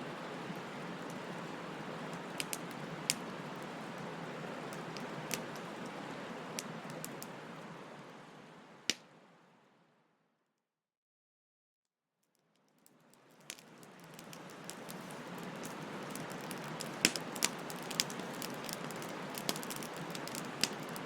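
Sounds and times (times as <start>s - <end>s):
bonfire hissing: 0.0s - 8.9s, 13.3s - 21.0s
burning wood crackling and popping: 0.1s - 7.7s, 12.6s - 21.0s.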